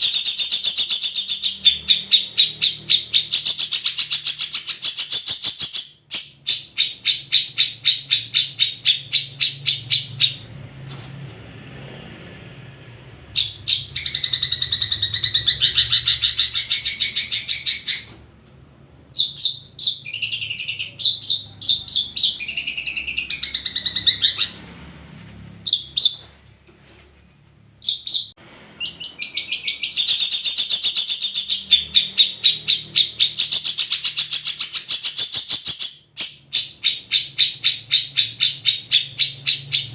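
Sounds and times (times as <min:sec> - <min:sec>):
bird chattering and warbling: 0:13.4 - 0:18.2, 0:19.2 - 0:24.7, 0:27.8 - 0:39.9.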